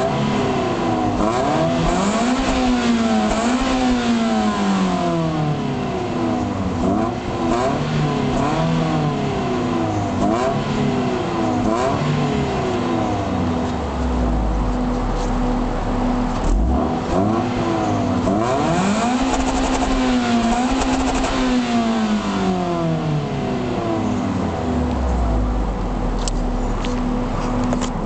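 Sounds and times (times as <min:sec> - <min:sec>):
car engine idling and revving: 0:00.0 - 0:28.0.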